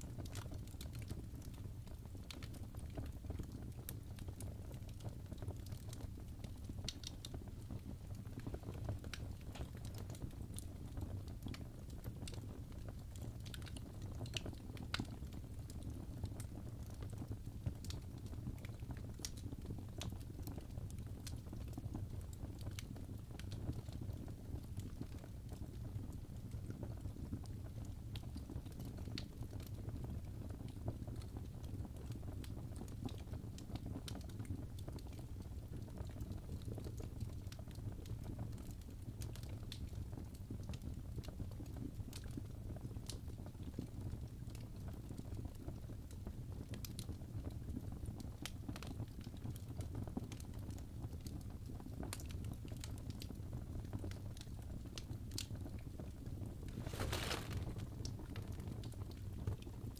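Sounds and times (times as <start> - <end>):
wood fire pops and snaps: 11.5 - 15.8, 52.1 - 59.7
fire low rumble: 55.0 - 59.7.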